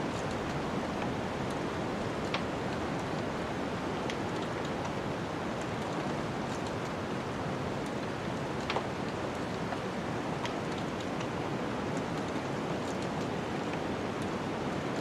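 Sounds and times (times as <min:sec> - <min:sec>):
wood fire crackling: 0:00.0 - 0:14.5.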